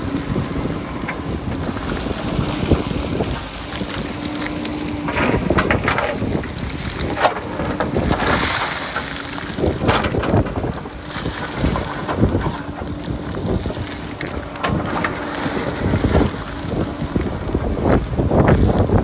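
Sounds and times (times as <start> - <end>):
diesel engine running: 0.0 - 19.0
wind buffeting microphone: 0.0 - 19.0
sharp crunching knocks: 2.7 - 17.0.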